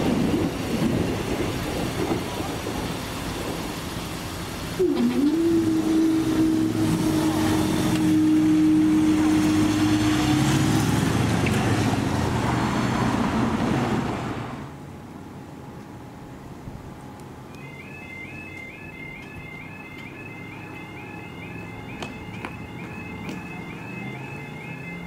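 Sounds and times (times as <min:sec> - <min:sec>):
train passing: 0:00.0 - 0:25.0
steady whine: 0:17.2 - 0:25.0.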